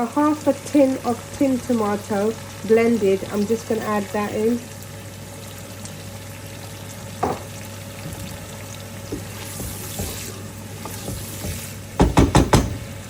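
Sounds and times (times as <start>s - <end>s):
food sizzling in a pan: 0.0s - 13.0s
loud knocks: 12.0s - 12.8s.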